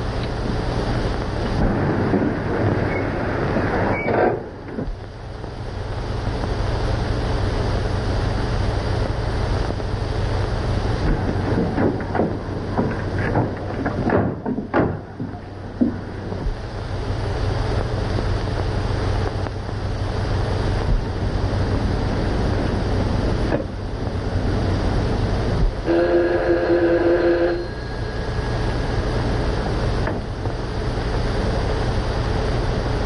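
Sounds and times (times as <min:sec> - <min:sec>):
car engine running: 0:00.0 - 0:33.0
film soundtrack hiss and hum: 0:00.0 - 0:33.0
knocks and thumps: 0:11.0 - 0:16.6.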